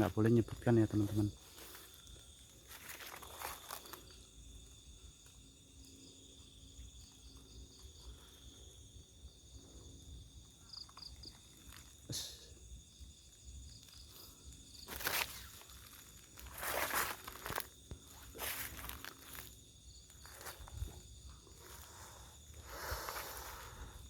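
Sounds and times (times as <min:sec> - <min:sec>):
crickets trilling and chirping: 0:00.0 - 0:24.0.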